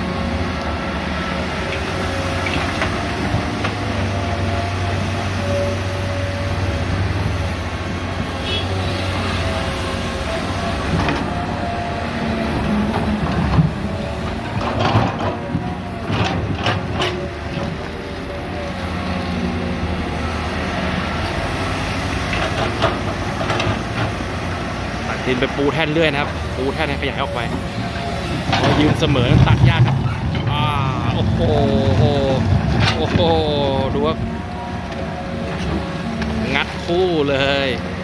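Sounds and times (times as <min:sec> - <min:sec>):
excavators running: 0:00.0 - 0:38.0
steel buckets clanking on rock: 0:26.1 - 0:34.3.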